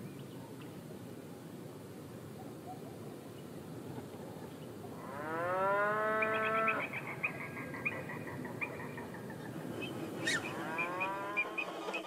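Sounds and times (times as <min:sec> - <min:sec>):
waterbird rising call: 0:05.8 - 0:12.0
quick high bird chirps: 0:09.8 - 0:12.0.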